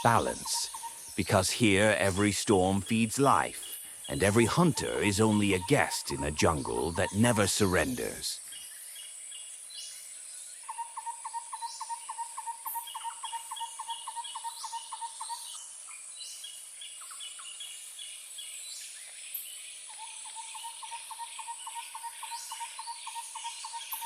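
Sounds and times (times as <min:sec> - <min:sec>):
fast repeated calls: 0:00.0 - 0:08.4.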